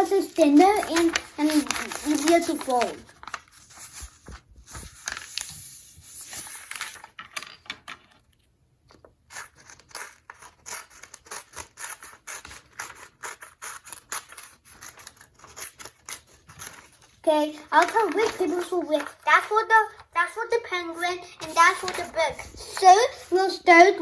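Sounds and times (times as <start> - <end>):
paper rustling: 0.0 - 8.2, 9.0 - 24.0
scissors snipping paper: 0.2 - 3.9, 9.3 - 17.1, 17.7 - 19.2, 21.4 - 23.3.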